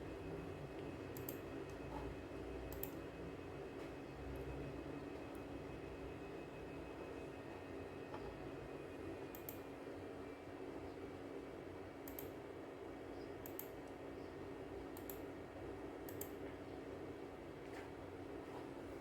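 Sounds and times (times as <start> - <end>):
steady low hum: 0.0 - 19.0
computer mouse clicking: 1.1 - 1.8, 2.7 - 3.0, 9.3 - 9.6, 12.0 - 12.4, 13.4 - 14.0, 15.0 - 15.2, 16.1 - 16.4.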